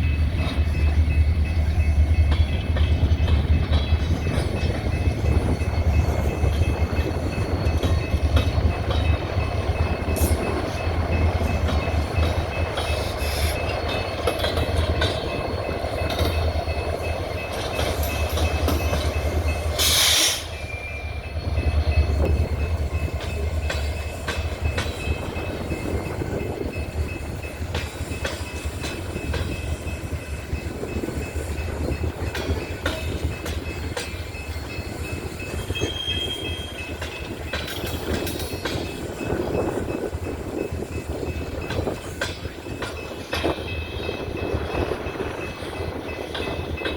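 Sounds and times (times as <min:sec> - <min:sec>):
wheels clicking over rail joints: 0:00.0 - 0:46.9
air hiss: 0:19.8 - 0:20.6
wheel squeal: 0:35.7 - 0:36.9.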